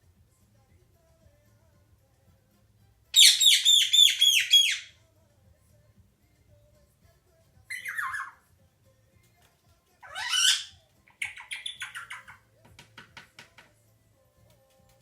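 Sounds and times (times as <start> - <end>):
parrot squawking: 3.2 - 4.9, 7.7 - 8.4, 10.0 - 12.4.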